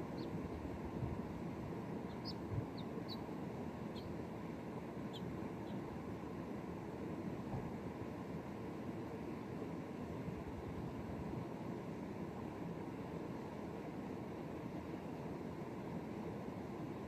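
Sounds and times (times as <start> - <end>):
faint high chirps: 2.0 - 3.3, 3.9 - 4.2.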